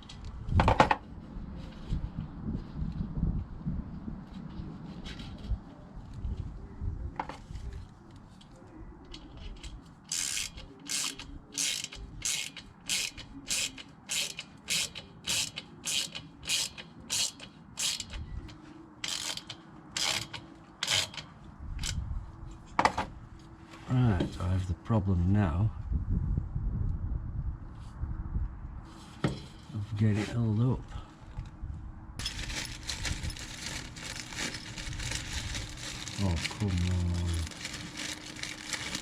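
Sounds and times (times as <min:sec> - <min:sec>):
ratchet clicking: 0:10.1 - 0:18.2, 0:19.0 - 0:22.0
handling knocks and rustling: 0:32.2 - 0:39.0.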